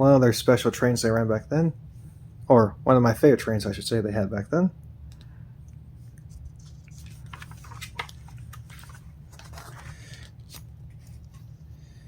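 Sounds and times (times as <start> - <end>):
steady low hum: 0.0 - 12.0
paper pages rustling: 6.1 - 11.6.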